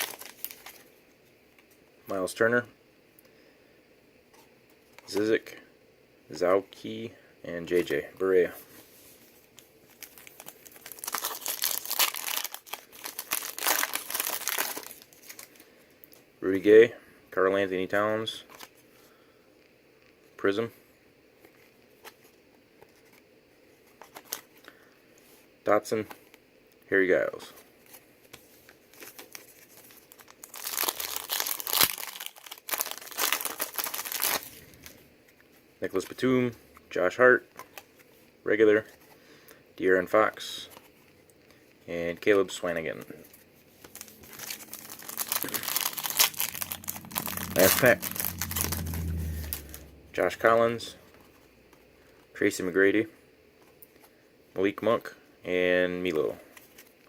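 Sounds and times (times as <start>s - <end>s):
wrapper tearing and crinkling: 0.0s - 0.9s, 9.9s - 15.6s, 28.9s - 35.0s, 43.8s - 50.6s.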